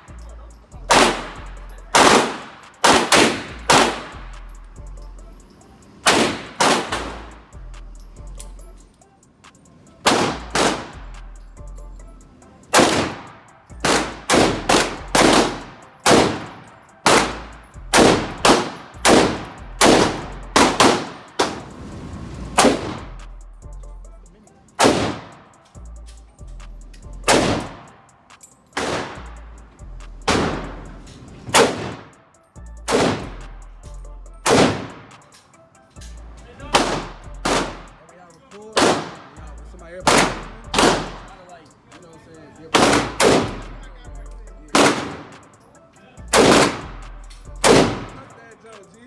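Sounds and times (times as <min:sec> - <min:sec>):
gunshots with ringing echo: 0:00.9 - 0:04.4, 0:05.8 - 0:07.5, 0:09.8 - 0:11.2, 0:12.7 - 0:21.9, 0:22.5 - 0:23.2, 0:24.8 - 0:25.8, 0:27.3 - 0:28.1, 0:28.8 - 0:29.4, 0:30.3 - 0:32.3, 0:32.9 - 0:33.6, 0:34.4 - 0:35.4, 0:36.6 - 0:38.1, 0:38.8 - 0:41.5, 0:42.7 - 0:43.9, 0:44.7 - 0:45.6, 0:46.3 - 0:48.6.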